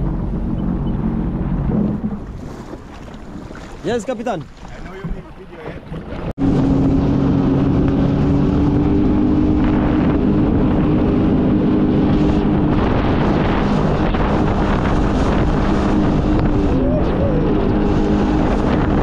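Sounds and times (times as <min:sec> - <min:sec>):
jet ski engine running: 0:00.0 - 0:19.0
wind buffeting microphone: 0:00.0 - 0:19.0.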